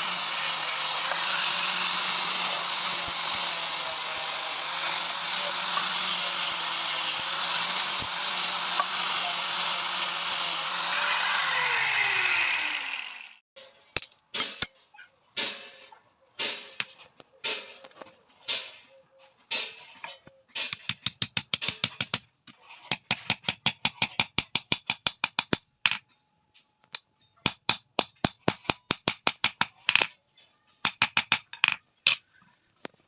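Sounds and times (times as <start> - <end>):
electric grinder on metal: 0.0 - 13.4.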